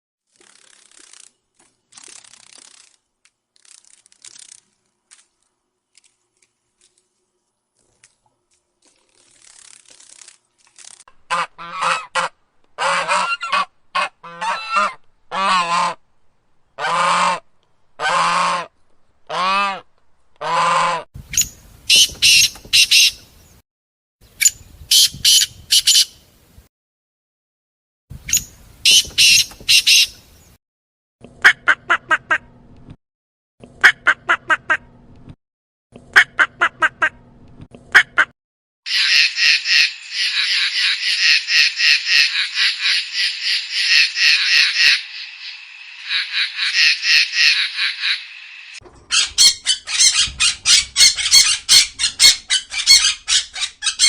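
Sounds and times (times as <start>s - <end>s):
goose honking: 11.3s - 16.0s, 38.9s - 45.1s, 46.0s - 48.3s
shrill bird calls: 21.4s - 23.2s, 24.4s - 26.2s, 28.3s - 30.2s, 38.9s - 54.0s.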